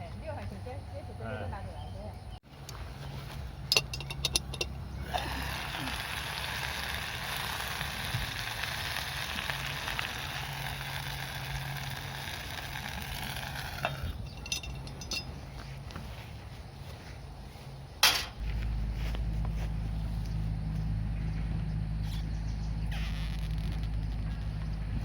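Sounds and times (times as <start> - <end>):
sizzling in a skillet: 5.2 - 12.9.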